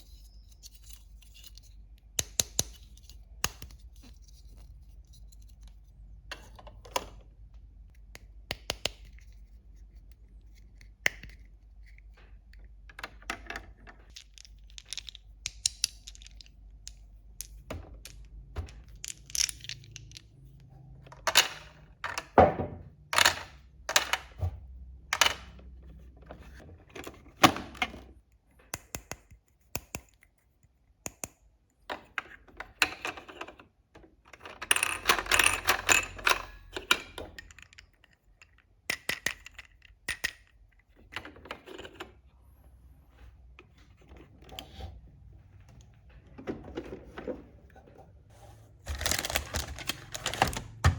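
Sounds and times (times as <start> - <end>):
plastic toy pieces clicking: 13.0 - 21.8
packaging rustling: 48.8 - 50.9.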